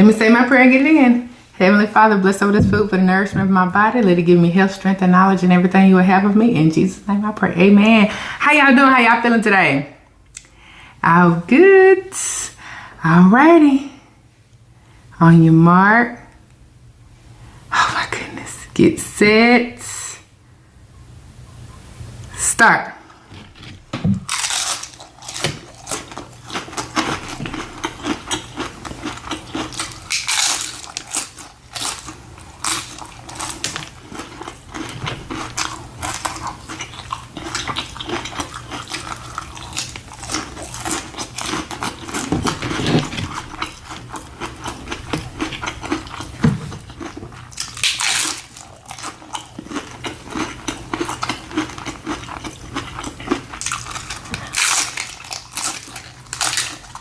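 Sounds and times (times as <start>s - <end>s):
biting and chewing food: 23.1s - 57.0s
crunchy bites: 23.4s - 57.0s.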